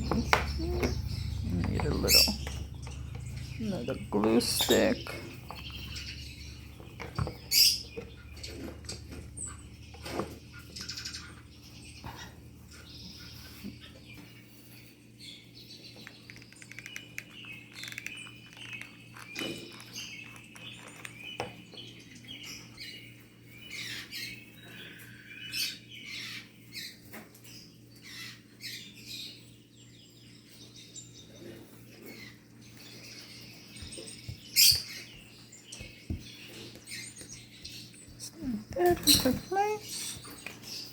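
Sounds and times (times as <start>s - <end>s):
steady low hum: 0.0s - 14.8s
lovebirds chirping: 0.0s - 40.9s.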